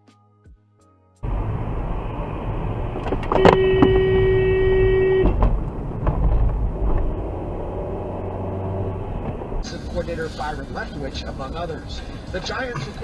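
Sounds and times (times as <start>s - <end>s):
vehicle road and engine rumble: 1.2s - 13.0s
car horn blaring: 3.3s - 5.4s.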